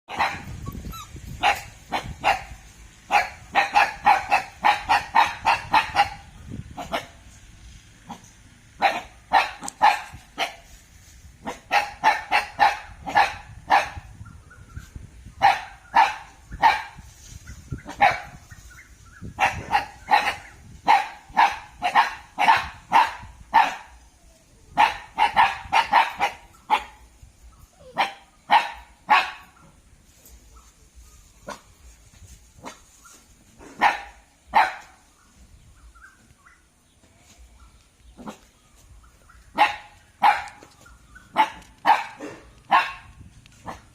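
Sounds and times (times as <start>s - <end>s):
dog barking: 0.1s - 0.7s, 1.4s - 7.2s, 8.8s - 10.7s, 11.4s - 14.1s, 15.4s - 17.0s, 17.8s - 18.4s, 19.4s - 24.0s, 24.7s - 27.1s, 27.8s - 29.8s, 33.6s - 35.0s, 39.5s - 43.9s.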